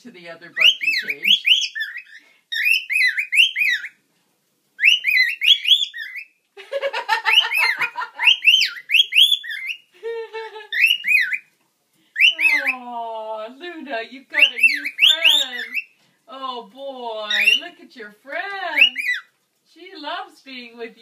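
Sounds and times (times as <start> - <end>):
birds chirping and warbling: 0.2 - 4.0, 4.8 - 6.4, 7.2 - 9.9, 10.5 - 11.5, 12.1 - 12.9, 13.8 - 16.0, 17.2 - 19.4.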